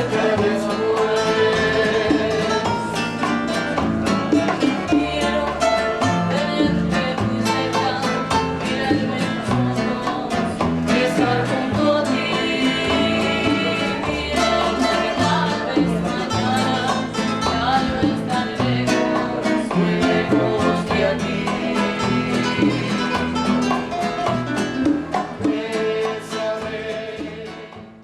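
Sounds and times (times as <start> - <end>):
band playing with plucked strings: 0.0 - 28.0
steady bass line: 8.5 - 27.5.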